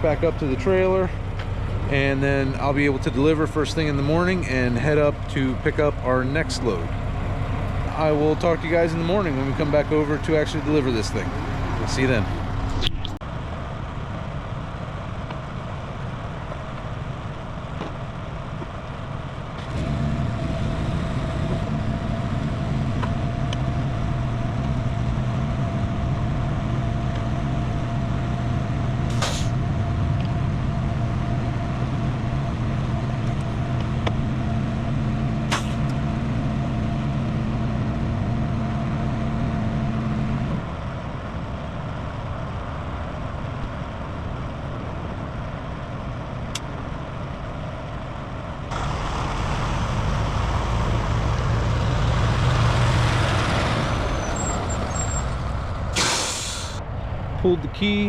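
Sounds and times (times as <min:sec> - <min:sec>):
engine running with thin whine: 0:00.0 - 0:58.0
heavy truck idling: 0:00.0 - 0:58.0
sharp air hisses: 0:29.1 - 0:29.6, 0:56.0 - 0:56.8.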